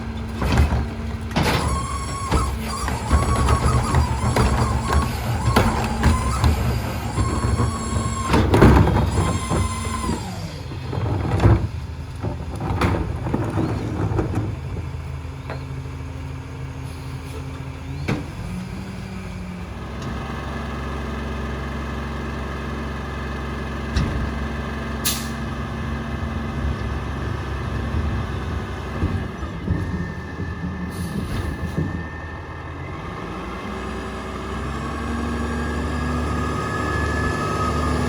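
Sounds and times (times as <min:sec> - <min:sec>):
garbage truck diesel engine running: 0:00.0 - 0:38.0
knocks: 0:00.5 - 0:09.1.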